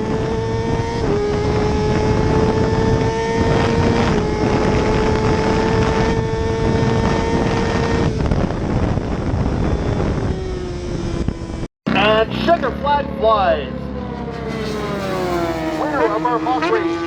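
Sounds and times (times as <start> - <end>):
wind rush: 0.0 - 11.7
motorcycle engine at high revs: 0.0 - 17.0.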